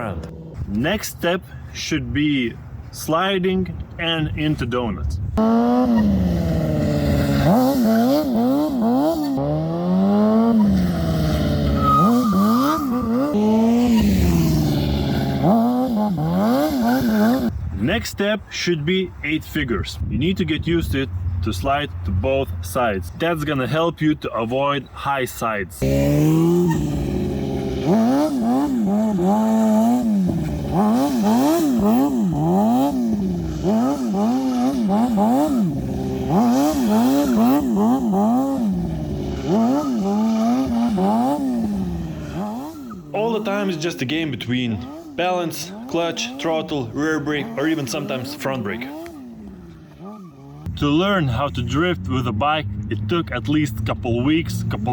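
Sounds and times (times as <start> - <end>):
motorcycle engine revving: 5.4 - 17.6, 25.8 - 54.9
tyre squeal: 10.5 - 14.4, 26.5 - 27.0, 50.0 - 50.6.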